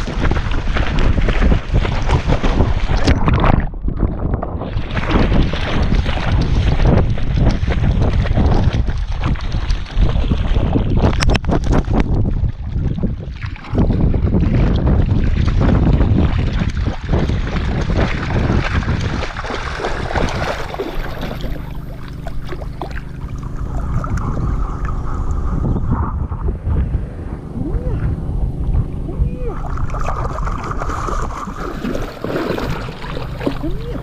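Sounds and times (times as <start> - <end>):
wind buffeting microphone: 0.0 - 34.0
river water splashing and rushing: 16.5 - 25.3, 27.5 - 34.0
steady low hum: 18.9 - 34.0.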